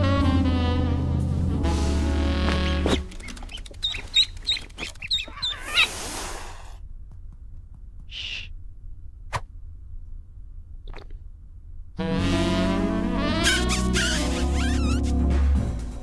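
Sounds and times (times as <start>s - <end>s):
music: 0.0s - 3.2s, 12.0s - 16.0s
short high chirping calls: 2.6s - 6.0s, 13.4s - 15.0s.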